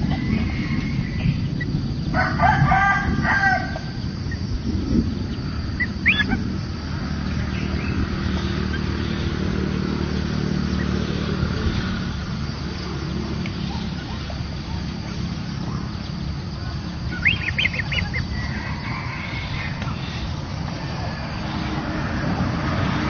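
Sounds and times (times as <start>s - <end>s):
steady low hum: 0.0s - 23.0s
loud bird call: 5.7s - 6.6s, 13.4s - 22.0s.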